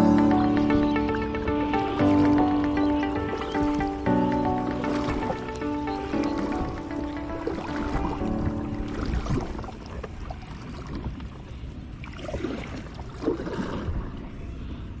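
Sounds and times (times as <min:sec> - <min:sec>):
background music: 0:00.0 - 0:09.8
water splashing around a kayak: 0:01.8 - 0:15.0.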